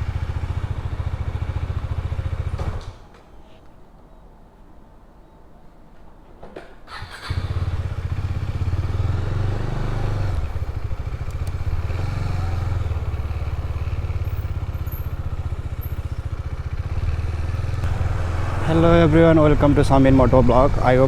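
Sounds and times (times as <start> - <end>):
motorcycle engine idling: 0.0 - 2.8, 6.9 - 21.0.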